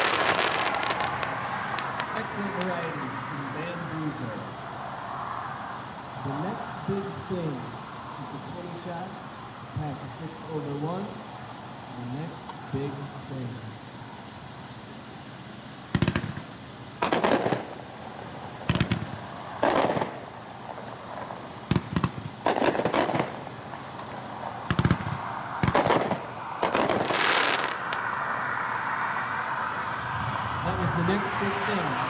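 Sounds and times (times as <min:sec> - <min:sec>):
distant firework launch thumps: 0:15.9 - 0:17.8, 0:18.6 - 0:20.3, 0:21.1 - 0:28.1.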